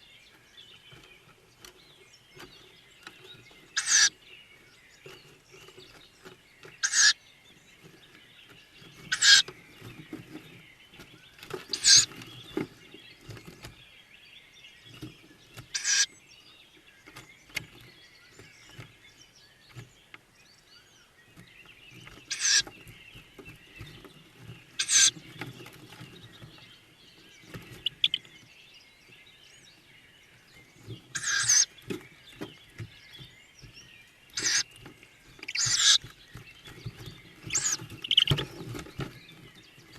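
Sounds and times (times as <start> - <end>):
faint rustling: 0.1 - 14.0, 14.6 - 39.9
owl chicks hissing calls: 3.6 - 4.2, 6.7 - 7.2, 9.0 - 9.5, 11.7 - 12.2, 15.6 - 16.2, 22.2 - 22.9, 24.7 - 25.3, 27.5 - 28.4, 31.0 - 31.9, 34.3 - 38.7.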